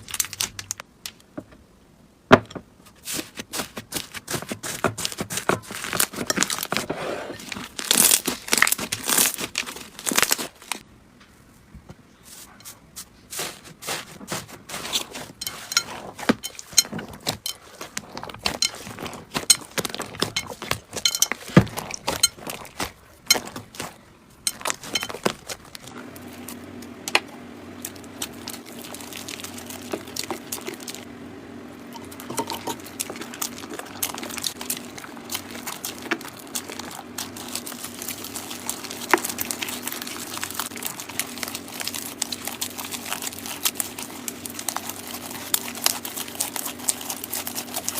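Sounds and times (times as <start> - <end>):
steady low hum: 10.8 - 47.9.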